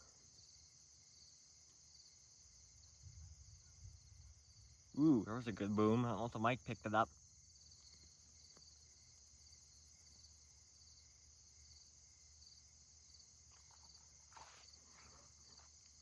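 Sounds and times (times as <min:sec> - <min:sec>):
crickets chirping: 0:00.0 - 0:16.0
soft rustle: 0:13.4 - 0:16.0.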